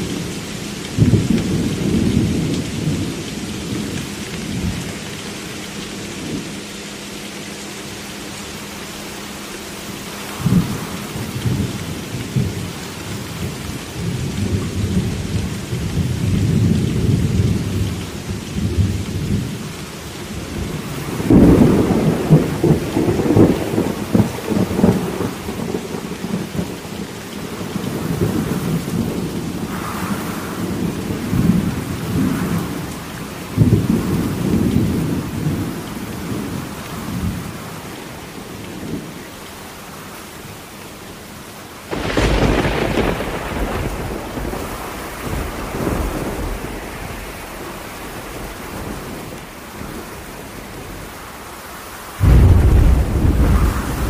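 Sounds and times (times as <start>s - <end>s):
steady rain: 0.0s - 54.0s
thunder rumbling: 20.3s - 37.6s, 41.9s - 51.1s, 52.2s - 54.0s.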